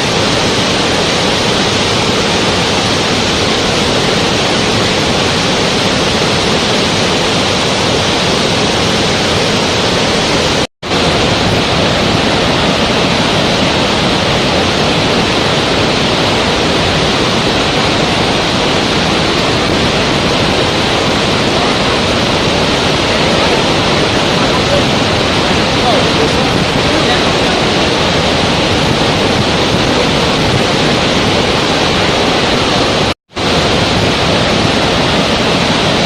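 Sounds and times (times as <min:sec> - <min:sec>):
water rushing: 0:00.0 - 0:36.0.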